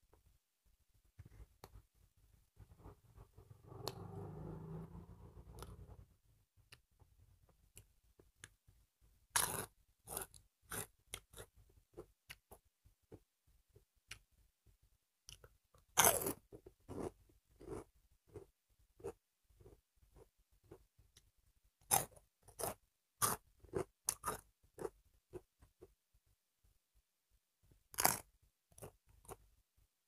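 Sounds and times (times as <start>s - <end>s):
chewing crunchy snacks: 9.4s - 12.4s, 15.3s - 19.8s, 21.8s - 25.4s, 27.9s - 29.4s.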